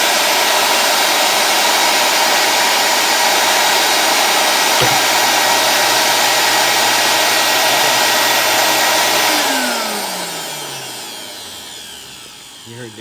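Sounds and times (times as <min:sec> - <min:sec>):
vacuum cleaner motor whining: 0:00.0 - 0:13.0
single knock: 0:04.7 - 0:09.2.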